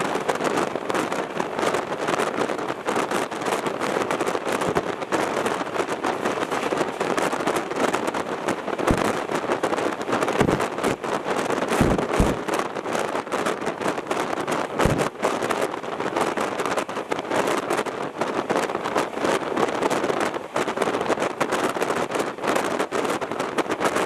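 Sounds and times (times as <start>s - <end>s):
fast train wind and rail noise: 0.0s - 24.0s
low thumps: 8.9s - 9.2s, 10.4s - 10.7s, 11.7s - 12.5s.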